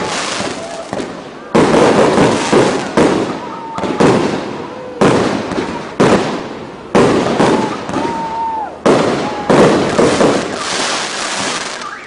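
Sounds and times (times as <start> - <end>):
fireworks crackling: 0.0 - 12.0
fireworks shells bursting: 9.1 - 11.9.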